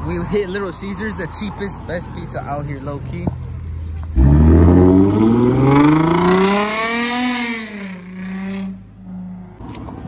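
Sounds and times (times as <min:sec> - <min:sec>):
car engine accelerating: 0:03.9 - 0:09.8.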